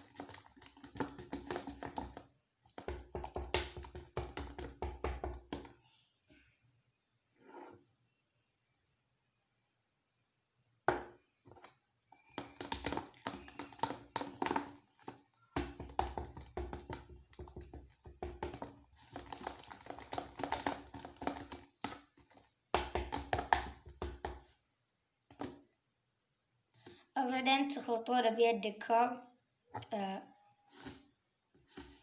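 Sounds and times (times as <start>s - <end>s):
utensil stirring slime in container: 0.0s - 5.8s, 10.9s - 24.6s, 30.7s - 32.0s.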